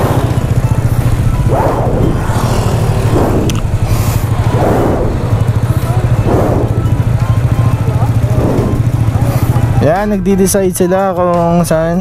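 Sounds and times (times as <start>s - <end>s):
hissing swell: 0.0s - 7.2s
motorcycle engine idling: 0.0s - 12.0s.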